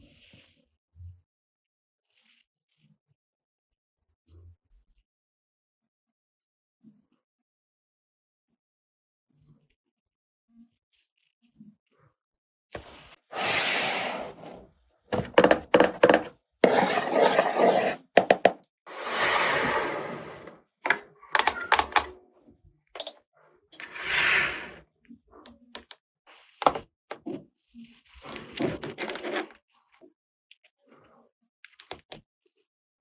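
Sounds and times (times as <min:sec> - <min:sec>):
plastic toy pieces clicking: 0:25.5 - 0:26.0.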